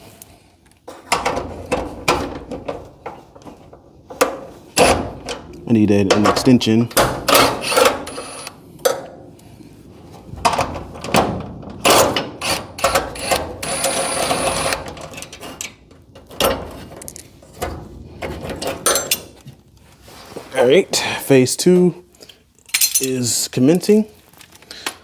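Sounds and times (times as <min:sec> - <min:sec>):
power driver whirring: 0:07.3 - 0:08.6, 0:12.4 - 0:14.8.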